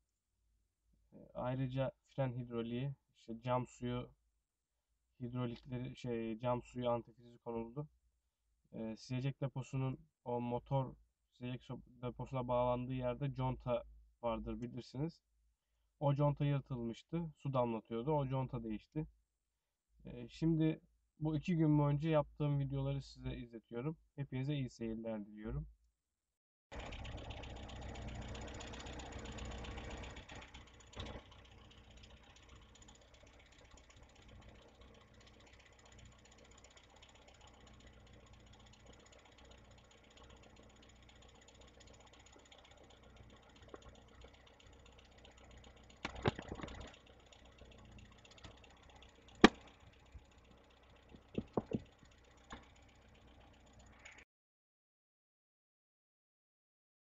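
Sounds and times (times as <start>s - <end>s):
sharp clicks and knocks: 26.8s - 31.6s, 38.4s - 52.9s.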